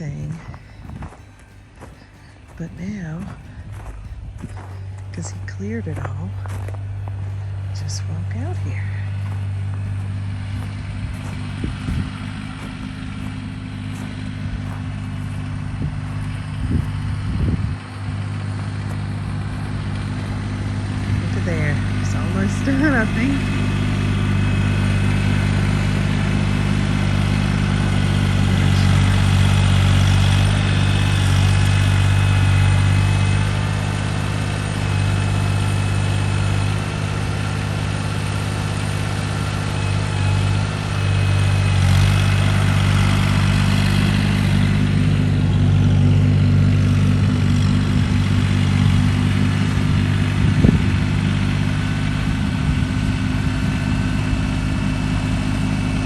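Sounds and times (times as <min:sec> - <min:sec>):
snow-clearing machine engine running: 0:00.0 - 0:56.0.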